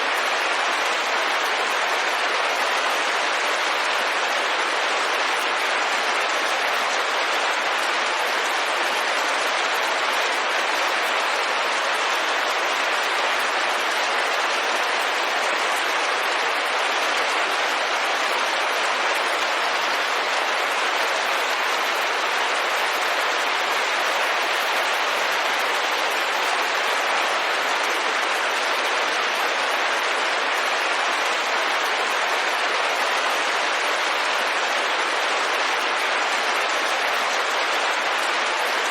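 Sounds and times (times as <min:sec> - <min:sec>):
rain on a window: 0:00.0 - 0:38.9.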